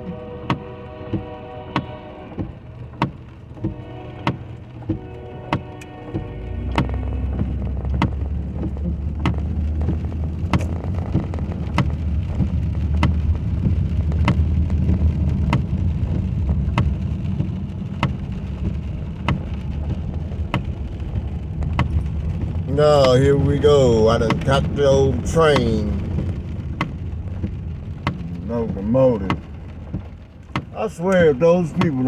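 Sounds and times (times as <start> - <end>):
car engine and road rumble: 0.0 - 32.0
rain: 0.0 - 32.0
windshield wipers clicking: 0.0 - 32.0.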